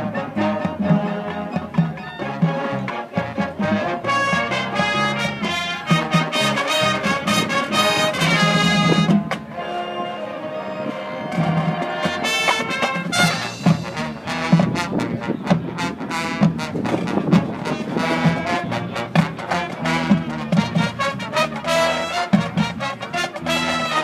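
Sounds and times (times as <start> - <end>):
brass chords: 0.0 - 24.0
marching band playing: 0.0 - 24.0
drum hits: 11.3 - 15.8.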